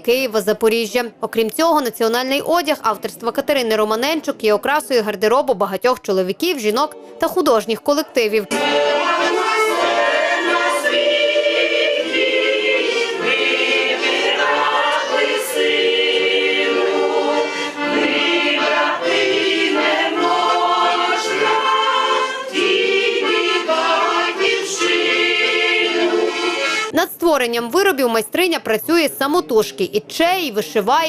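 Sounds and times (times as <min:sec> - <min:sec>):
instrumental backing: 0:06.8 - 0:27.0
choir singing: 0:06.9 - 0:07.4, 0:08.4 - 0:26.9.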